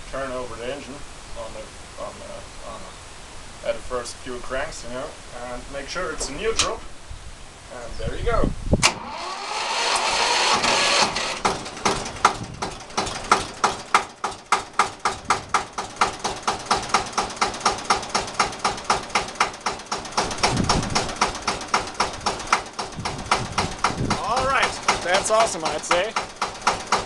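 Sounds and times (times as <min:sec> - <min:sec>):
diesel tractor engine running: 0:08.8 - 0:27.0.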